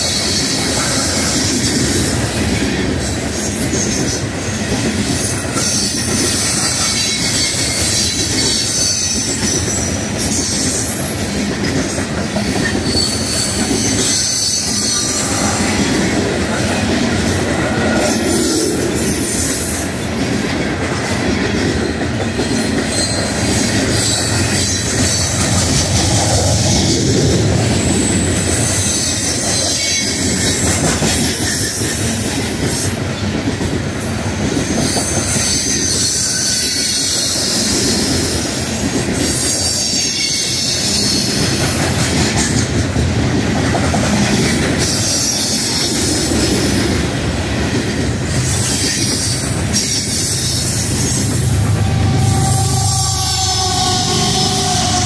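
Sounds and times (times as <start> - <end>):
freight train wheels rumbling: 0.0 - 55.0
wheel squeal: 5.6 - 15.8, 21.8 - 27.0.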